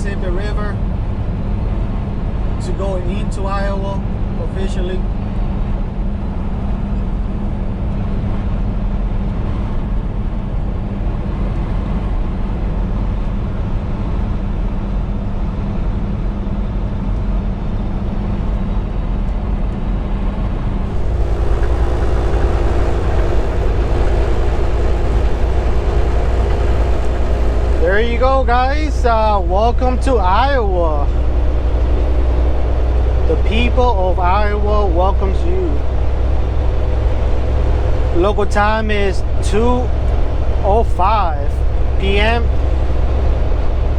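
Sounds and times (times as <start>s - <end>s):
truck engine drone: 0.0s - 10.4s, 20.8s - 43.9s
steady hum: 20.8s - 43.9s.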